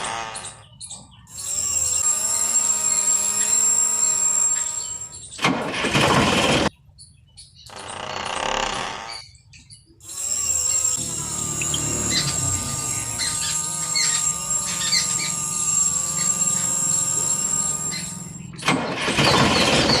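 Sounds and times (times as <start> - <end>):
small motor running: 0.0 - 6.7, 7.7 - 20.0
birds chirping: 0.0 - 20.0
wavering squeal: 9.1 - 18.6.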